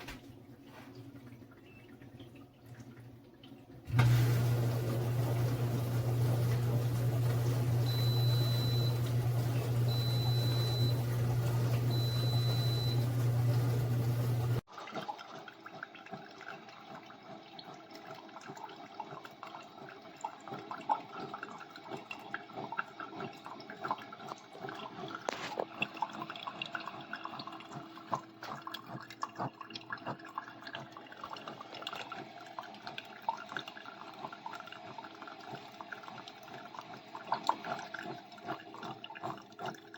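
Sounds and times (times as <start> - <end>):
liquid dripping and trickling: 0.1 - 39.9
coffee maker humming: 3.8 - 14.7, 16.5 - 29.2.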